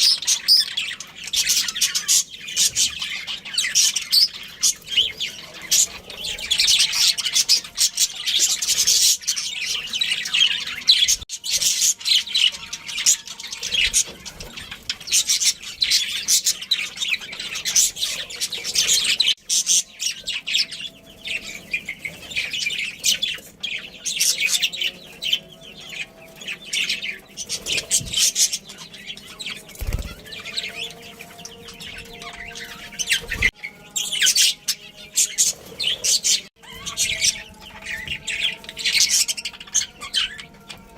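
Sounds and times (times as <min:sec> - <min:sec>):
budgerigars chirping: 0:00.0 - 0:40.9.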